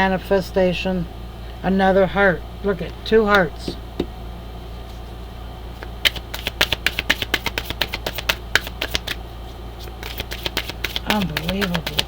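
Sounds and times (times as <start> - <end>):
low hum: 0.0 - 10.1
cards being shuffled: 5.8 - 9.2, 9.8 - 12.0.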